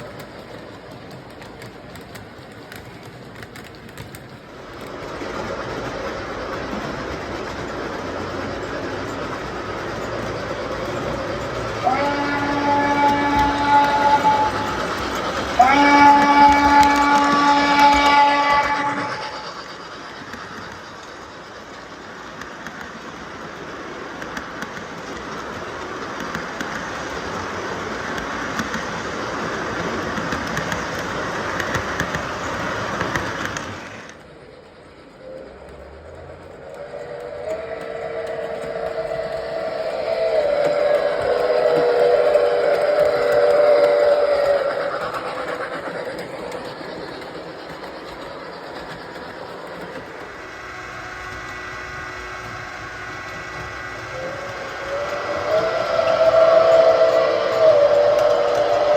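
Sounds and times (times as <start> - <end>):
model train wheels clattering: 0.0 - 58.9
model train whistle chord: 11.7 - 19.6, 36.7 - 45.1, 50.4 - 58.9.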